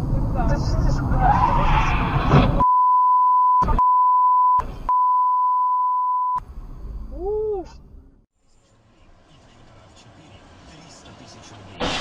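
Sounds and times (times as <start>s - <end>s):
censor bleep tone: 2.6s - 6.4s
noisy audio snatches: 11.4s - 12.0s.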